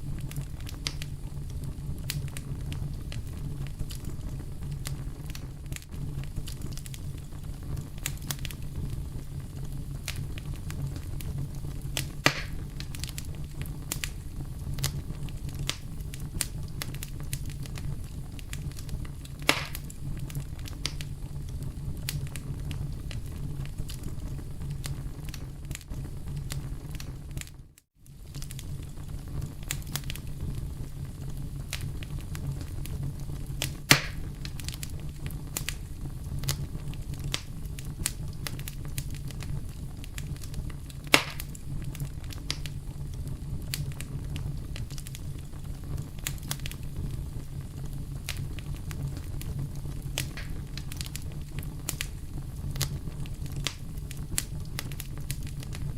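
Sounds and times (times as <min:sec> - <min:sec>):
fire crackling: 0:00.0 - 0:55.9
flame rumble: 0:00.0 - 0:55.9
wood popping: 0:12.0 - 0:14.1, 0:19.4 - 0:19.9, 0:33.6 - 0:34.8, 0:41.1 - 0:41.6, 0:50.2 - 0:51.1.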